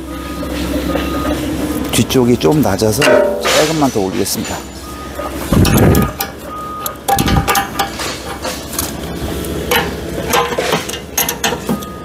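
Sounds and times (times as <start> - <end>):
metal tool clinks and knocks: 3.0 - 3.9.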